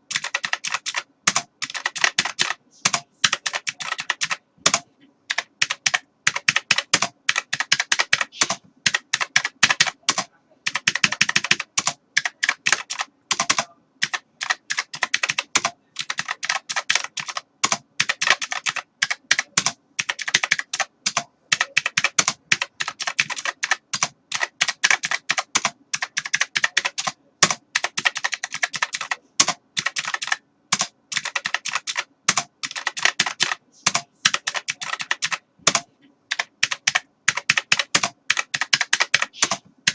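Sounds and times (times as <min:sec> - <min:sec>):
computer keyboard typing: 0:00.0 - 0:39.9.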